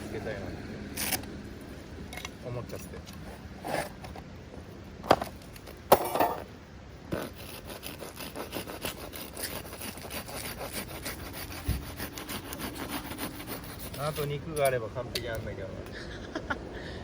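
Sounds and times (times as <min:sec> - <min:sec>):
saw rasping through wood: 0:07.2 - 0:14.8.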